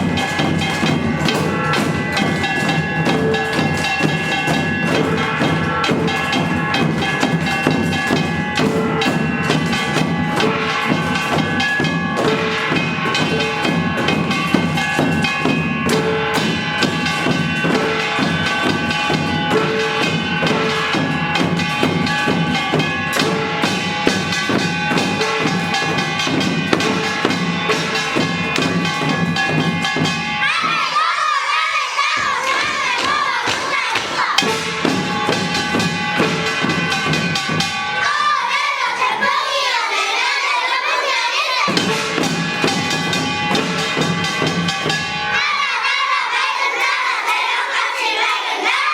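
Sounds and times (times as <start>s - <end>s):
crowd of voices: 0.0s - 48.9s
traditional percussion of drums and gongs: 0.0s - 48.9s.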